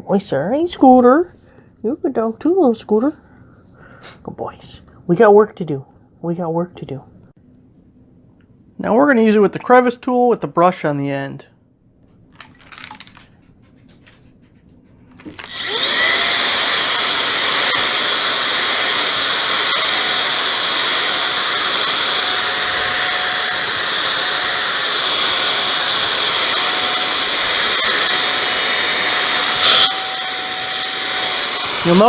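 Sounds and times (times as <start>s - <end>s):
stick vacuum whining: 12.4s - 32.0s.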